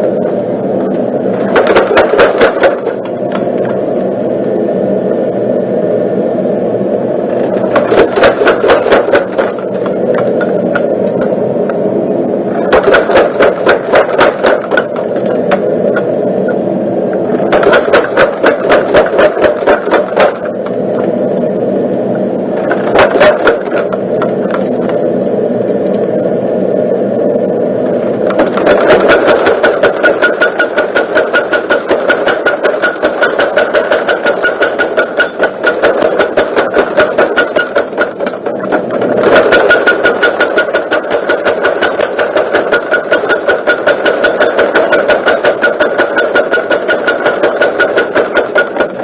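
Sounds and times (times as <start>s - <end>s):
machine hum: 0.0s - 49.0s
forging hammer pounding: 1.3s - 4.3s, 7.4s - 11.8s, 12.5s - 16.1s, 17.4s - 20.8s, 22.6s - 25.0s, 28.2s - 49.0s.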